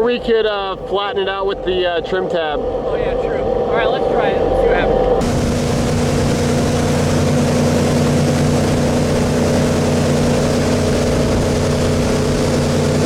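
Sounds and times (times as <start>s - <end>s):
boat engine droning: 0.0s - 13.0s
rush of wind and water: 5.0s - 13.0s.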